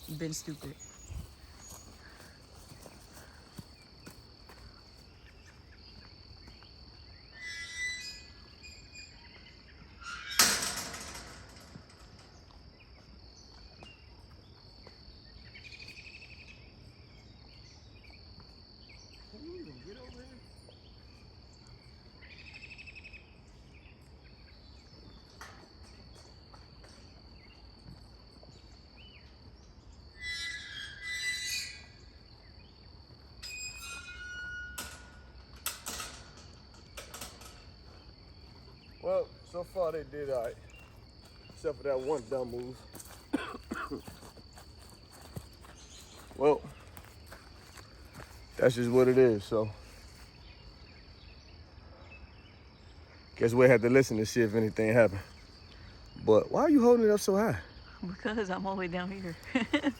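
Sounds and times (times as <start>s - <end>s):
high-pitched insect drone: 19.1s - 20.6s, 33.0s - 50.4s.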